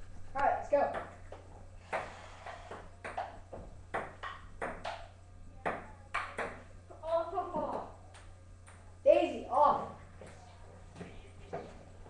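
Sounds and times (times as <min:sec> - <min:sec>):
ping pong ball clicking: 0:02.7 - 0:06.6.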